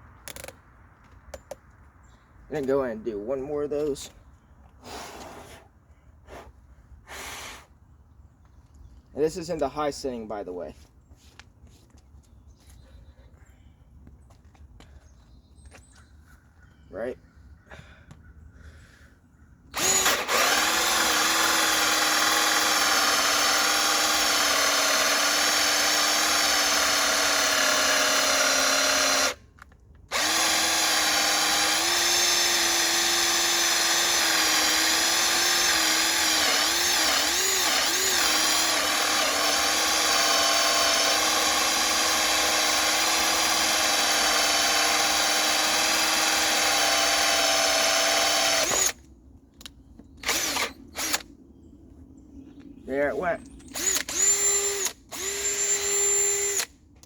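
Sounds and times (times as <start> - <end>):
cordless drill whining: 0.3 - 0.5, 19.8 - 29.4, 30.1 - 49.0, 50.2 - 51.3, 53.7 - 56.7
hole saw cutting wood: 19.8 - 29.4, 30.1 - 49.0, 50.2 - 51.2, 53.8 - 56.7.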